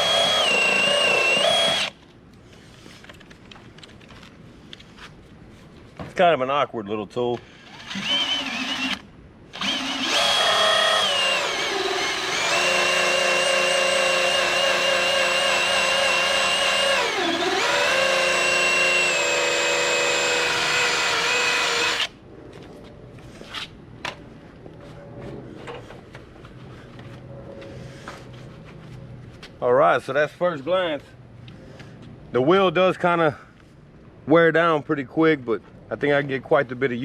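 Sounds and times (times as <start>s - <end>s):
electric drill motor whine: 0.0s - 2.0s, 7.6s - 9.0s, 9.6s - 22.1s.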